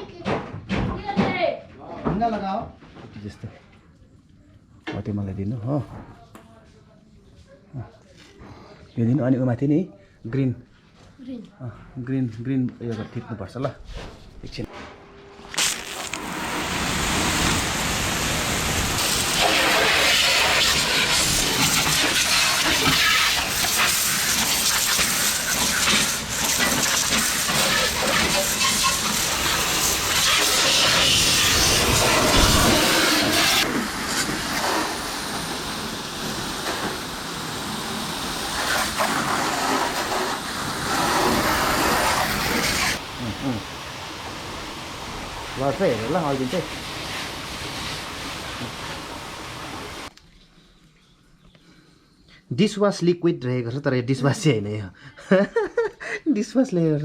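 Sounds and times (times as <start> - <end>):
pressure washer spraying water: 15.5 - 50.1.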